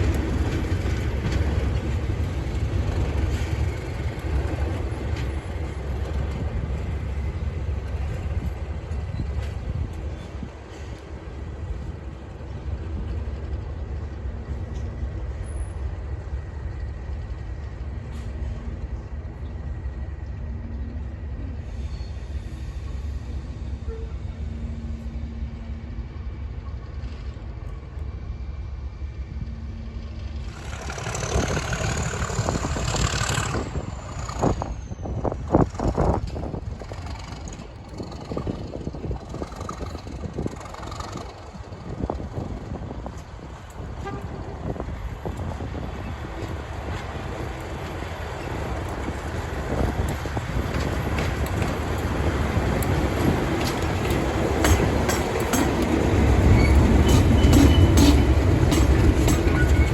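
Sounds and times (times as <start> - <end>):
diesel locomotive engines rumbling: 0.0 - 59.9
sharp knocks from train wheels: 52.7 - 59.9.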